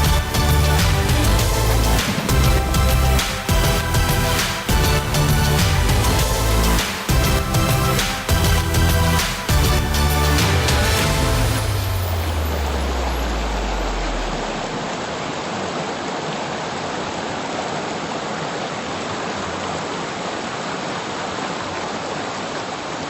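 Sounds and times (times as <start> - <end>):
low music: 0.0 - 14.5
waterfall rushing: 0.0 - 23.0.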